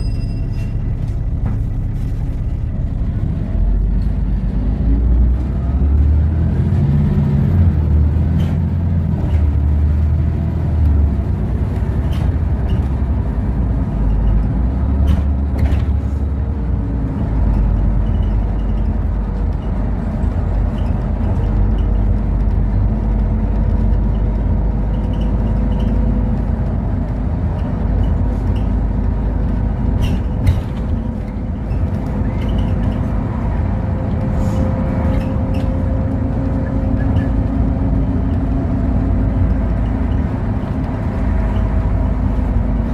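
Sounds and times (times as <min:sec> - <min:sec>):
bus engine and road rumble: 0:00.0 - 0:42.9
knocks and rattles: 0:17.4 - 0:33.7.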